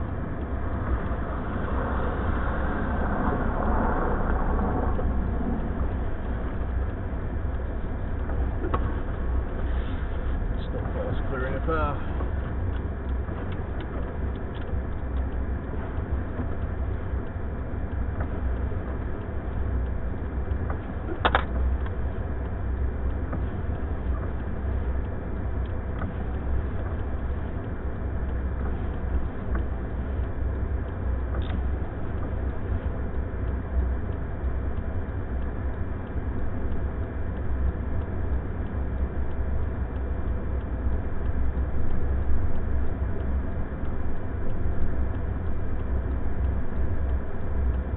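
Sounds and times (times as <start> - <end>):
vehicle engine rumbling: 0.0 - 47.9
blizzard hiss: 0.6 - 7.3.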